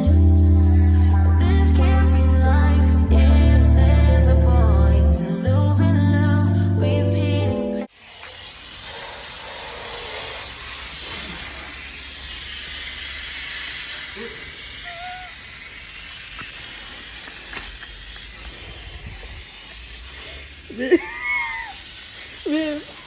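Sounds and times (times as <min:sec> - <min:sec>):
steady hissing noise: 0:07.8 - 0:23.0.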